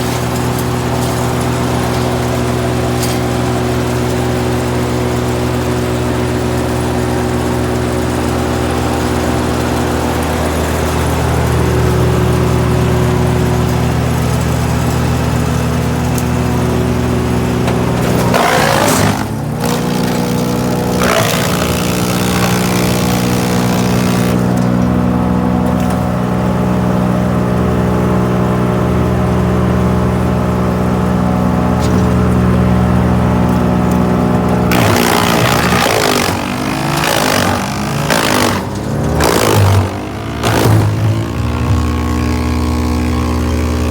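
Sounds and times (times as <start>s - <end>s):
wood chipper running: 0.0s - 43.9s
loud wood chipping: 16.3s - 24.9s, 34.0s - 43.9s.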